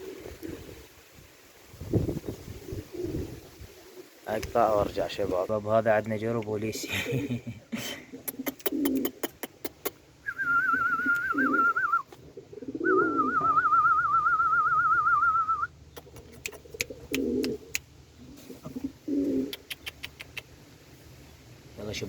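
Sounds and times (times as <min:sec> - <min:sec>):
pigeons cooing: 0:00.0 - 0:00.9, 0:02.0 - 0:04.2, 0:07.3 - 0:20.6
sharp clicks: 0:16.0 - 0:17.9.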